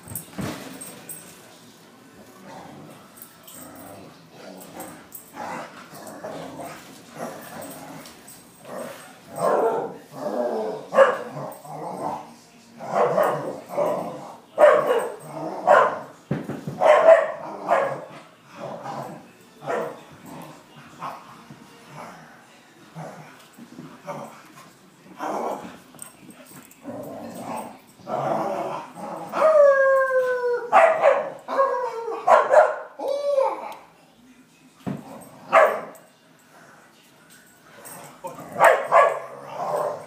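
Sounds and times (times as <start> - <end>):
dog barking: 9.4 - 10.0, 10.9 - 11.4, 14.6 - 16.1, 16.8 - 18.1, 30.7 - 31.4, 32.3 - 32.9, 35.5 - 36.0, 38.6 - 40.0.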